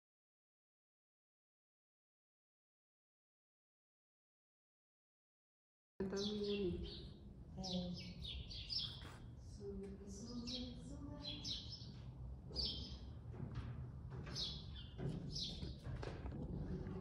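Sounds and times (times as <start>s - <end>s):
small birds chirping: 6.0s - 13.3s, 14.2s - 17.0s.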